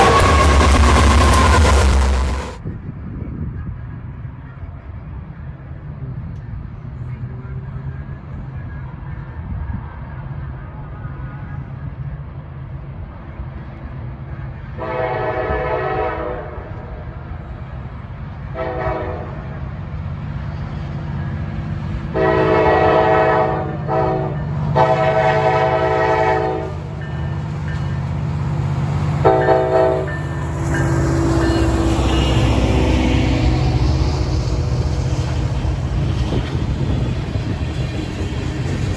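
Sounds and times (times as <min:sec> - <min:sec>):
locomotive air horn blasts: 0:00.0 - 0:02.5, 0:14.8 - 0:16.8, 0:18.5 - 0:19.5, 0:22.1 - 0:27.0, 0:29.2 - 0:33.9
passing train rumble: 0:00.0 - 0:38.9.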